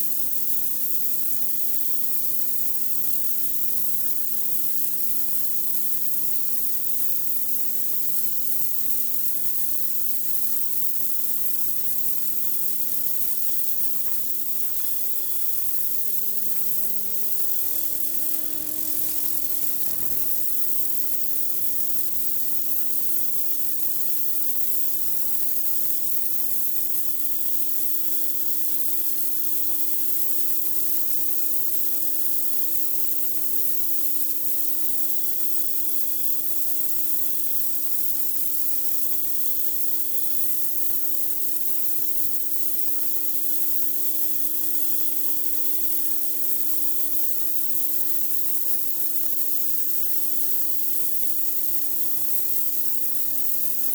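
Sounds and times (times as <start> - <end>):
motor humming: 14.0 - 22.6
pressure washer water jet hissing: 14.8 - 22.3.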